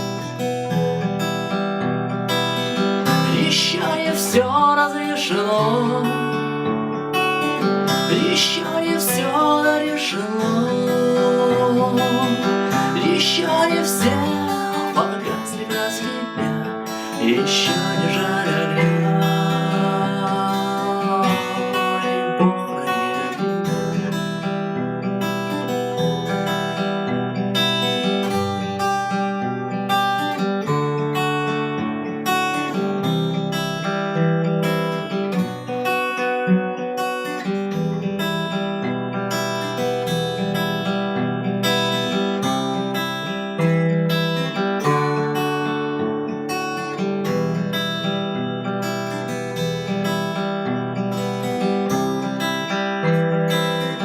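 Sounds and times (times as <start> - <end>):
fingerstyle acoustic guitar: 0.0 - 54.0.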